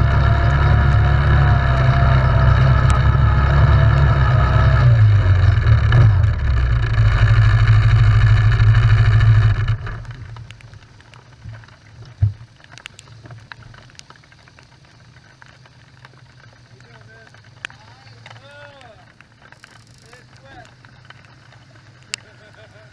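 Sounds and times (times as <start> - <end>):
atv engine idling: 0.0 - 10.6
light ticks: 9.6 - 22.9.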